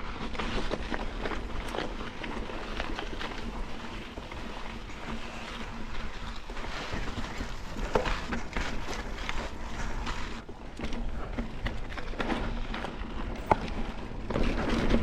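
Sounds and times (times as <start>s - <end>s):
bike clicks and rattles: 0.0s - 15.0s
tyre and wind rumble: 0.0s - 15.0s.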